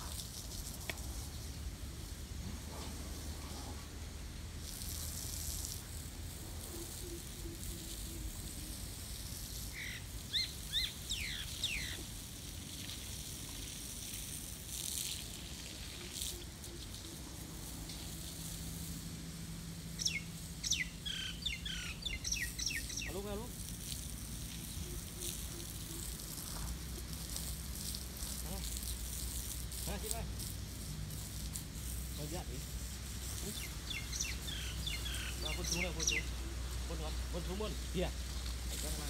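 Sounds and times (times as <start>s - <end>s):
steady outdoor hiss: 0.0s - 39.0s.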